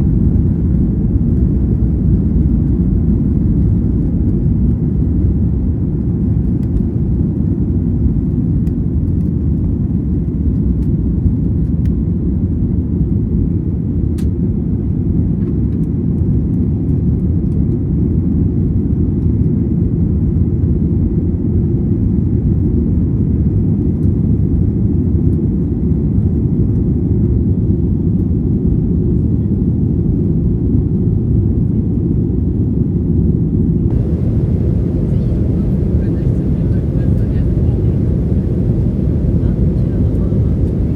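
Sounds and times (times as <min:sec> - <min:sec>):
jet airliner cabin rumble: 0:00.0 - 0:09.4, 0:29.2 - 0:40.9.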